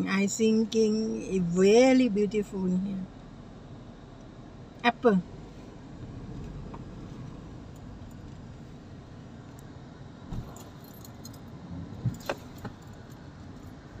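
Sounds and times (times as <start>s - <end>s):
steady low rumble: 0.0s - 14.0s
light metallic clicks and jingles: 7.7s - 8.5s, 10.3s - 13.9s.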